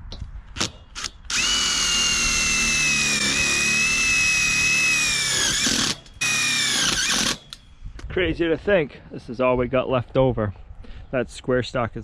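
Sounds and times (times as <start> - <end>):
power tool whining: 0.6 - 7.7.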